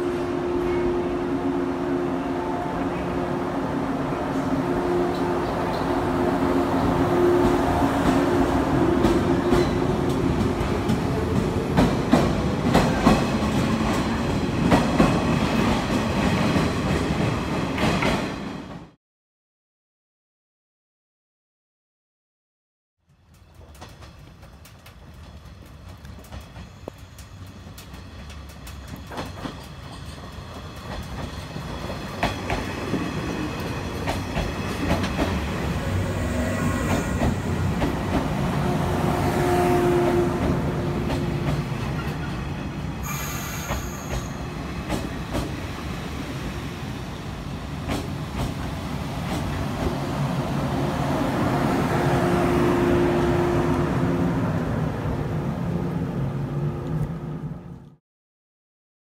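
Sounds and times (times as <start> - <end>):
train wheels clicking over joints: 23.2 - 35.5, 43.2 - 45.6, 47.7 - 50.0
high wheel squeals: 43.0 - 44.6.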